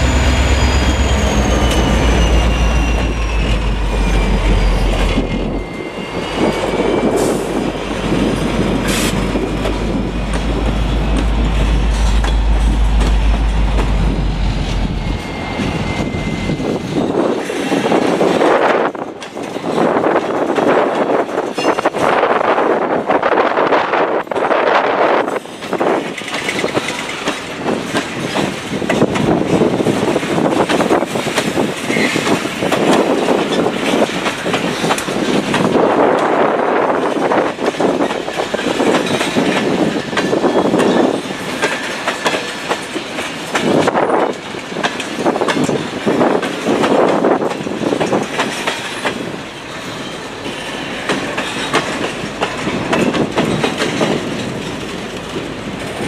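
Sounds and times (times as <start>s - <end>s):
freight train cars rolling past: 0.0s - 56.0s.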